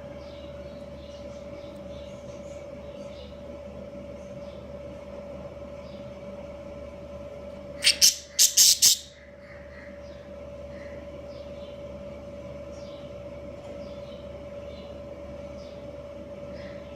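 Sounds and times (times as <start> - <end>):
steady background hum: 0.0 - 16.9
budgerigars chirping: 7.8 - 9.9.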